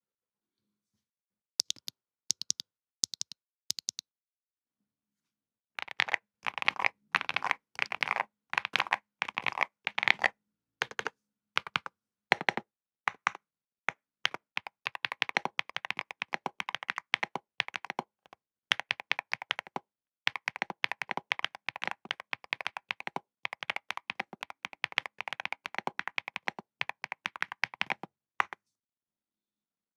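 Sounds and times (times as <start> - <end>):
typing on mechanical keyboard: 5.8 - 13.4, 14.3 - 28.6.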